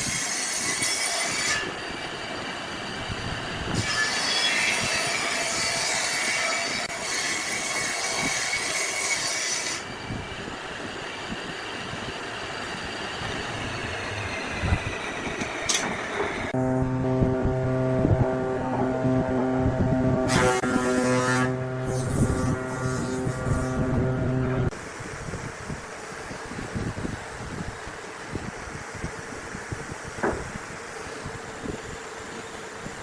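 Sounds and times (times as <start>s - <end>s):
mechanical squealing and grinding: 12.6s - 24.7s.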